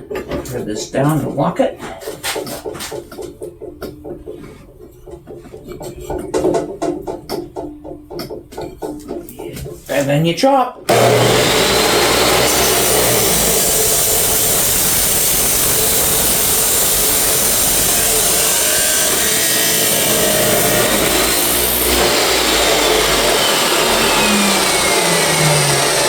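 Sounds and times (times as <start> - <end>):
chop saw cutting pipe: 10.9 - 26.0.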